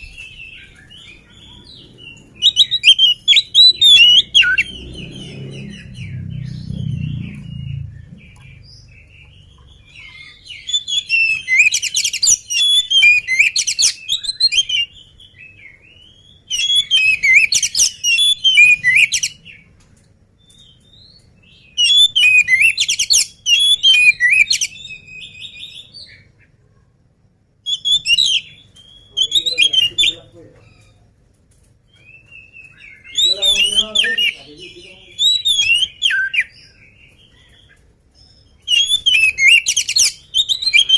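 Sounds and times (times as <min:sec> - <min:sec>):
bird singing chirps and whistles: 0:00.0 - 0:19.7, 0:20.4 - 0:26.3, 0:27.7 - 0:31.0, 0:31.9 - 0:40.9
low rumble: 0:03.7 - 0:09.9.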